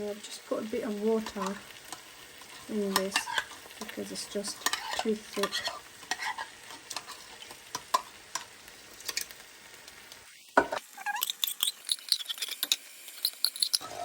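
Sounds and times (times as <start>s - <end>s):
spoon stirring thick sauce: 1.2s - 9.2s
spoon scraping and clinking on pan: 1.2s - 9.3s, 10.6s - 14.0s.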